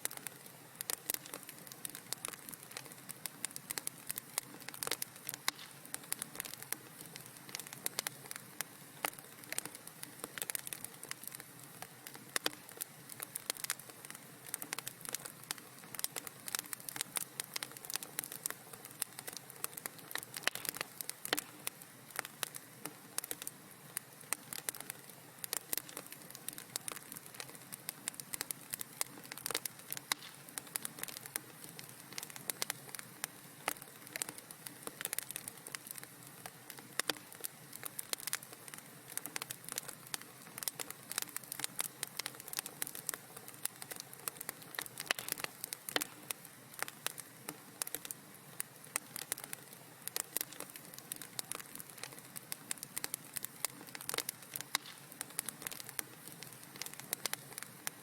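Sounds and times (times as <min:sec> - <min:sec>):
soft fire hiss: 0:00.0 - 0:58.0
wood fire crackling and popping: 0:00.0 - 0:58.0.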